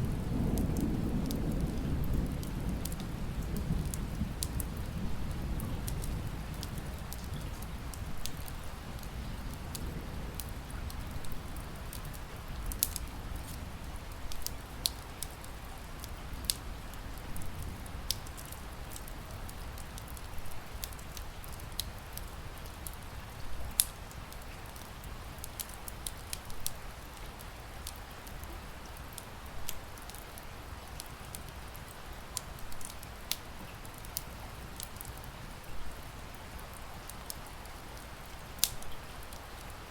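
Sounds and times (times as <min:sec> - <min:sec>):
thunder rumbling: 0:00.0 - 0:13.9
wood fire crackling and popping: 0:00.0 - 0:23.0, 0:23.6 - 0:35.2, 0:36.8 - 0:39.9
rain pattering: 0:00.0 - 0:39.9.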